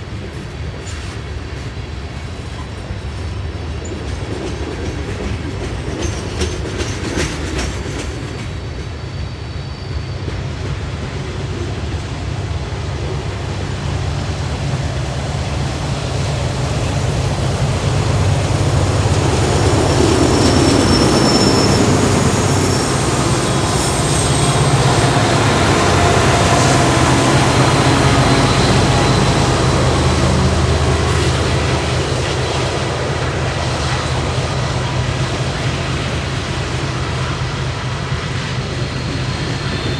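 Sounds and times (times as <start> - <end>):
freight train wheels rumbling on rail: 0.0 - 39.9
high wheel squeals: 8.0 - 34.9, 38.5 - 39.9.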